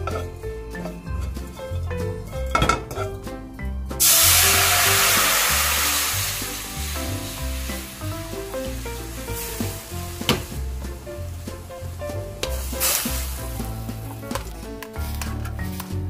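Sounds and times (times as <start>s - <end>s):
water sizzling in hot pan: 4.0s - 14.2s.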